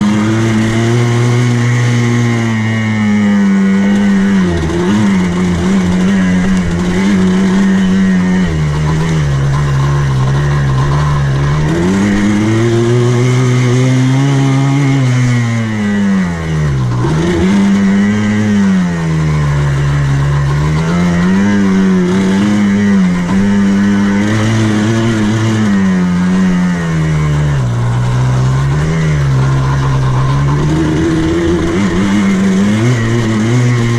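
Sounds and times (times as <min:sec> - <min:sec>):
buggy engine revving: 0:00.0 - 0:33.9.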